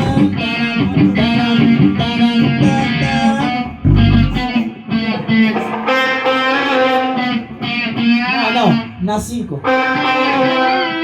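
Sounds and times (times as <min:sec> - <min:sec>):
electric guitar riff: 0:00.0 - 0:08.4, 0:09.7 - 0:11.0
deep low hit: 0:03.9 - 0:04.6.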